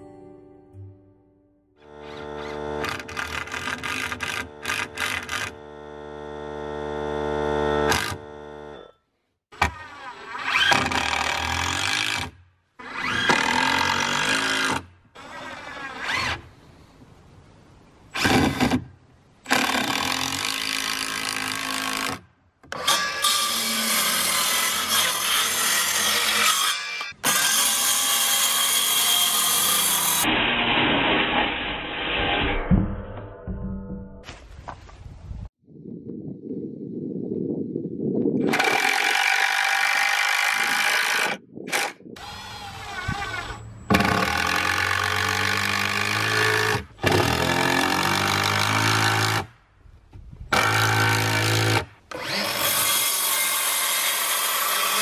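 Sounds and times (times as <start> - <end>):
circular saw cutting boards: 1.8 - 8.9, 9.6 - 16.4, 19.5 - 33.4, 38.4 - 49.5, 50.5 - 55.0.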